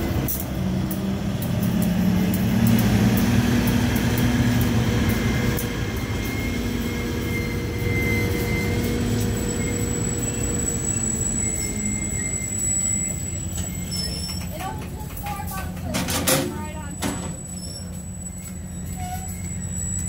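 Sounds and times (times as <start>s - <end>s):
train wheels rumbling and clattering: 0.0s - 20.0s
thin wheel squeal: 4.4s - 14.7s, 16.7s - 20.0s.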